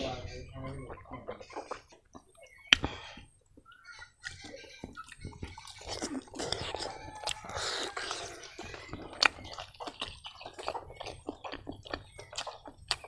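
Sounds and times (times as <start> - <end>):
wet chewing and lip smacking: 0.9 - 13.0.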